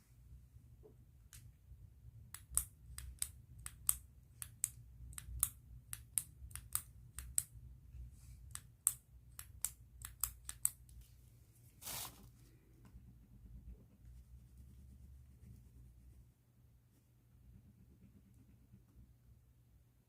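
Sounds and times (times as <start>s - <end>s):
pen clicking: 8.5s - 10.8s
short rustle: 11.7s - 12.4s.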